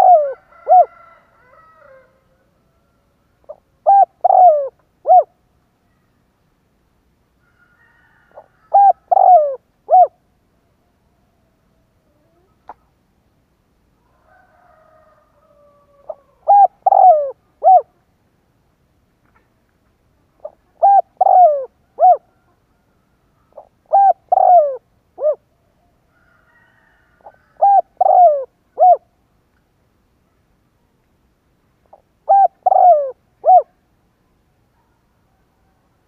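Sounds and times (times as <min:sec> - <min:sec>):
dove cooing: 0:00.0 - 0:02.1, 0:03.4 - 0:05.4, 0:08.3 - 0:10.2, 0:15.5 - 0:18.0, 0:20.4 - 0:22.6, 0:23.5 - 0:25.4, 0:27.2 - 0:29.2, 0:31.9 - 0:33.8.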